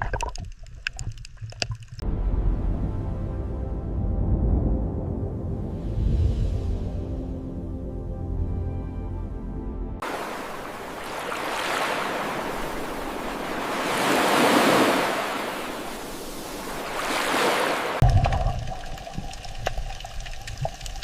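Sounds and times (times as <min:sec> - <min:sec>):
sea waves washing in: 0:10.0 - 0:20.2.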